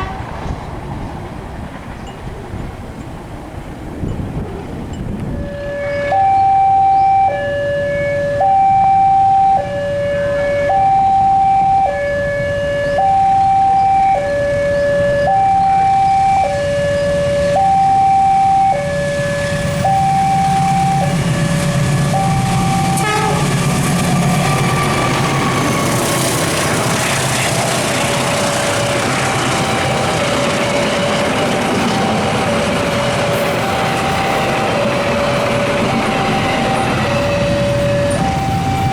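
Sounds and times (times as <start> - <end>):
train passing: 0.0 - 38.9
two-tone warning alarm: 5.3 - 38.9.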